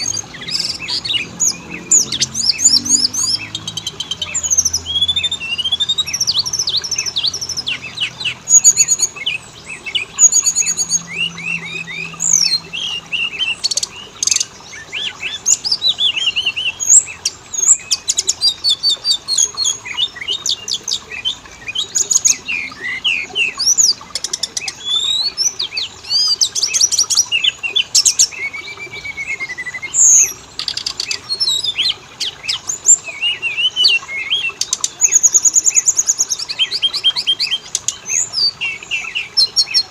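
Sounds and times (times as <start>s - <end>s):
bird whistling and trilling: 0.0s - 39.9s.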